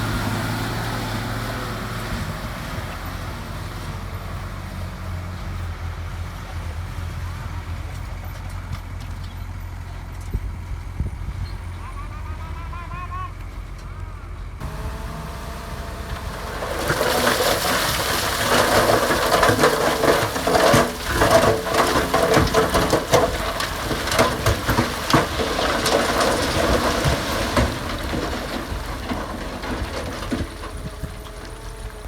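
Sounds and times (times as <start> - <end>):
diesel engine running: 0.0 - 32.0
gravel sliding off truck bed: 14.6 - 32.0.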